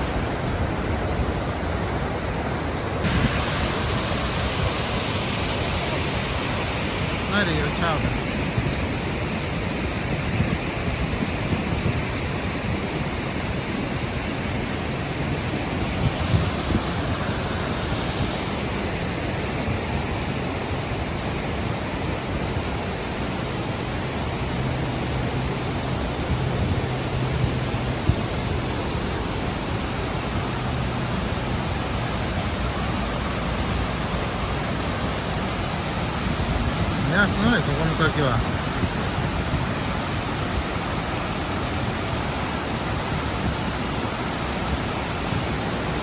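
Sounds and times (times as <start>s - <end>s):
waterfall rushing: 0.0s - 46.0s.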